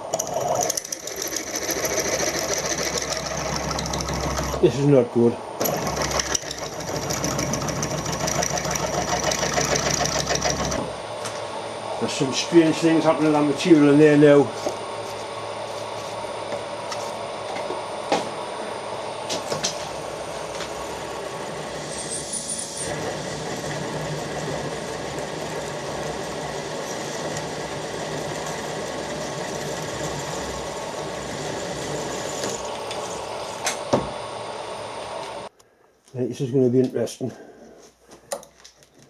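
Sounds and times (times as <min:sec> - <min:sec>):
drill cutting metal: 0:05.6 - 0:10.9, 0:20.5 - 0:33.8
high-pitched squeal: 0:21.6 - 0:23.7.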